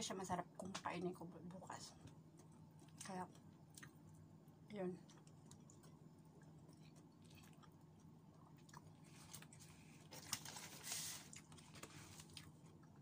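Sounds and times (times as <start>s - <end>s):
low steady hum: 0.0s - 13.0s
person chewing food: 2.1s - 4.4s, 5.0s - 13.0s
soft rustle: 9.0s - 12.4s.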